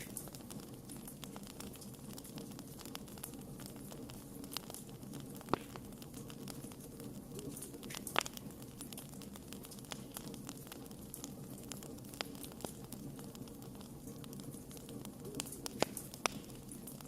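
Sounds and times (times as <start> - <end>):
loud fire pops: 0.0 - 17.0
low hiss of burning: 0.0 - 17.0
wood fire crackling: 0.0 - 17.0.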